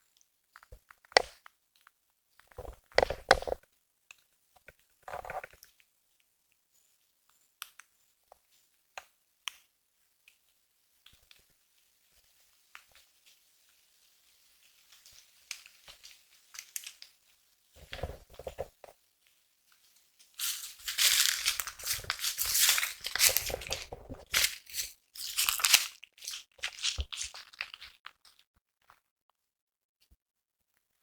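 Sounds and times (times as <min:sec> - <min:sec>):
crunching crackling and tearing: 0:15.5 - 0:17.1, 0:20.4 - 0:28.4.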